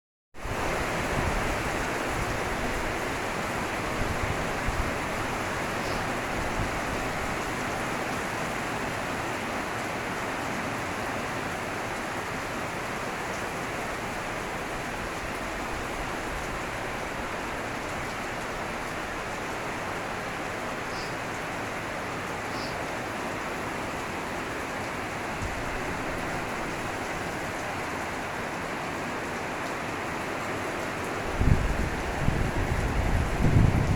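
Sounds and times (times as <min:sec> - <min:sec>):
steady rain falling: 0:00.4 - 0:33.9.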